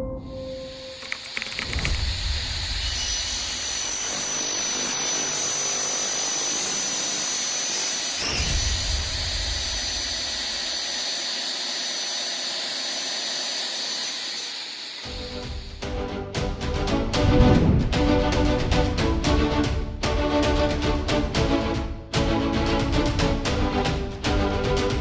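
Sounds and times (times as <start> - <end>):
cutting saw whining: 0.2 - 16.0
low rumble: 1.8 - 3.5, 17.0 - 19.6.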